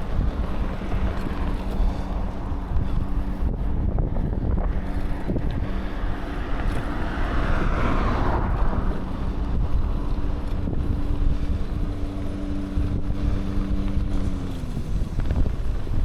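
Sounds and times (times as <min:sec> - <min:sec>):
rushing noise: 0:00.0 - 0:11.8
wind buffeting the microphone: 0:00.0 - 0:16.0.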